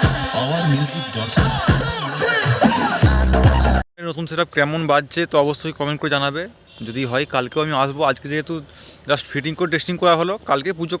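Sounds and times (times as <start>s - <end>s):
electronic dance music: 0.0s - 3.8s.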